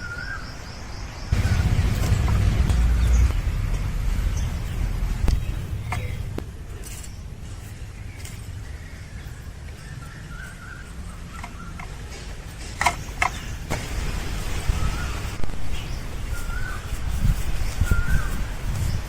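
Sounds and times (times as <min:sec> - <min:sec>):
bird chirping: 0:00.0 - 0:13.7, 0:14.4 - 0:19.0
low background rumble: 0:01.3 - 0:12.1.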